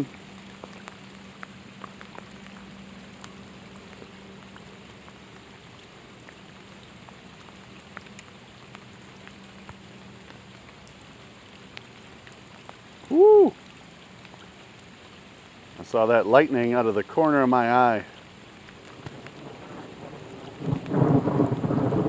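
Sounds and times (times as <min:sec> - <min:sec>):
raindrop taps: 0:00.0 - 0:11.0, 0:18.5 - 0:22.0
rain falling: 0:00.0 - 0:22.0.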